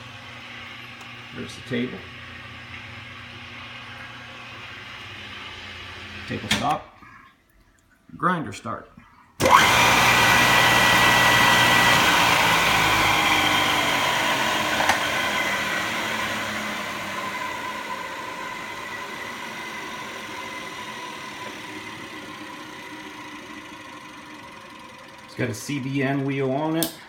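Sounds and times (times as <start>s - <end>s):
grinding wheel motor whirring: 9.4s - 26.9s.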